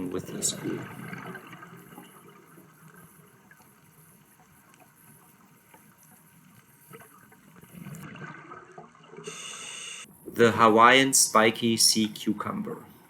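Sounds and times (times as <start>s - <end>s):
faint underwater hiss: 0.0s - 8.0s, 9.2s - 13.0s
small underwater clicks: 0.4s - 8.0s.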